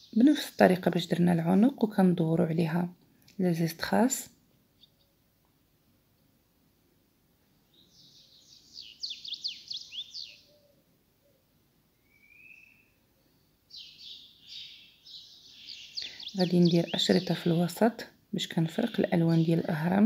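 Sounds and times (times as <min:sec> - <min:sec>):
songbird chirping and trilling: 0:00.0 - 0:02.7, 0:04.7 - 0:05.2, 0:07.6 - 0:20.0
whistled bird note: 0:12.0 - 0:13.0.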